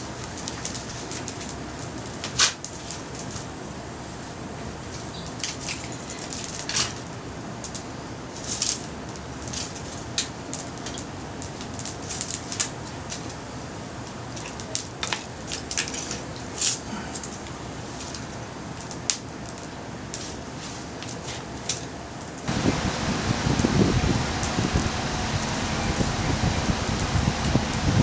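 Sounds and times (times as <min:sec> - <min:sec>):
background hiss: 0:22.5 - 0:28.0.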